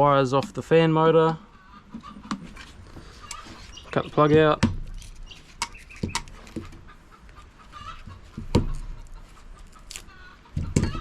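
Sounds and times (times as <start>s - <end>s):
chicken clucking: 5.3s - 11.0s.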